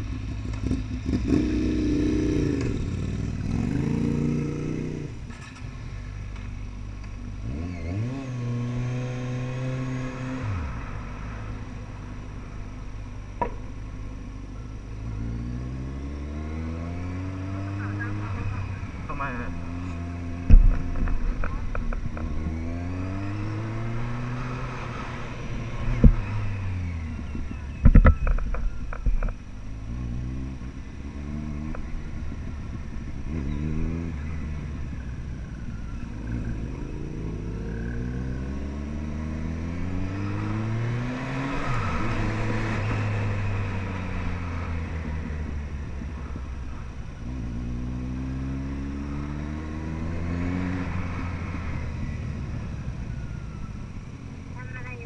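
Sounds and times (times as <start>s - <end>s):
motorcycle engine accelerating: 0.0s - 55.0s
sharp loud thumps: 20.4s - 22.2s.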